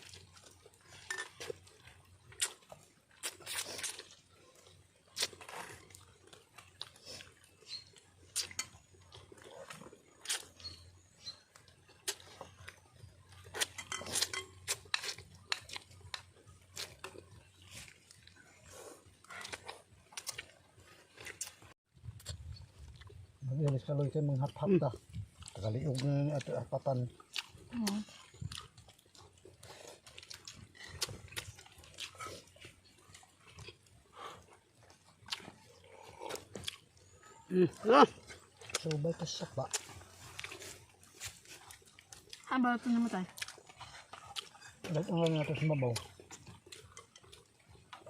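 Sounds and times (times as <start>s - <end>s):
chewing: 0.0s - 48.0s
lip smacking: 43.3s - 48.0s.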